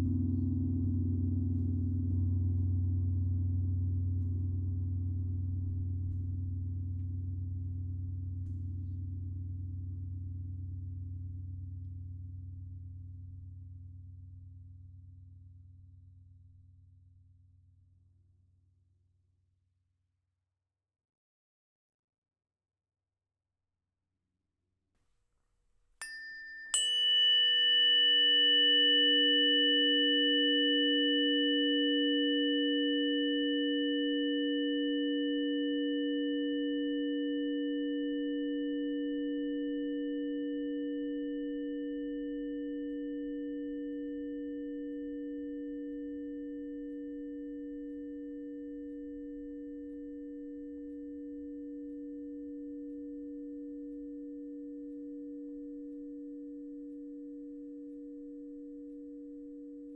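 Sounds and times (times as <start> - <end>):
singing bowls ringing: 26.0 - 59.9.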